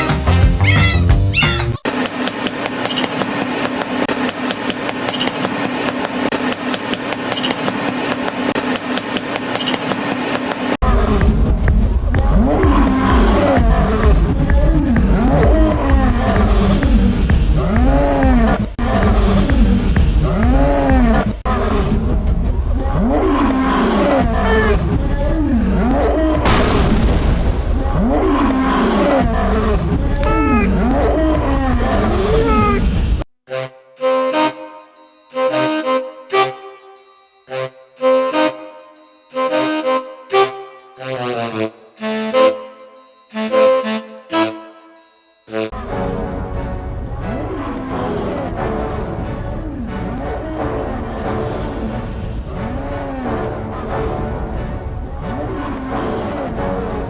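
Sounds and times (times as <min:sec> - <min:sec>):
cat yowling: 0:00.6 - 0:01.8, 0:24.2 - 0:25.4, 0:30.1 - 0:30.9.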